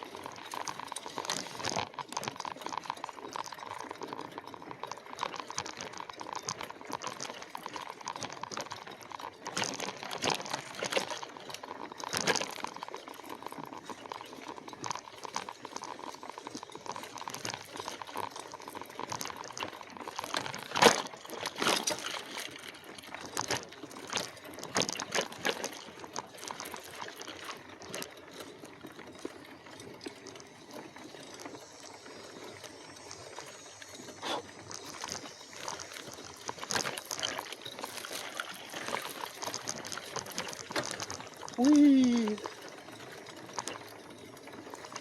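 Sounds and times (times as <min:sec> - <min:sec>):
bike rattling: 0:00.0 - 0:45.0
tyres crunching on trail: 0:00.0 - 0:45.0.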